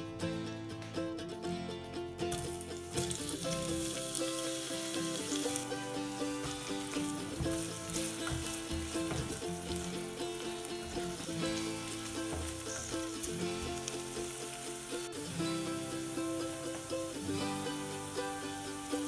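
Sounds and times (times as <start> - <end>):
plucked-string background music: 0.0 - 19.0
onion sizzling in oil: 2.3 - 19.0.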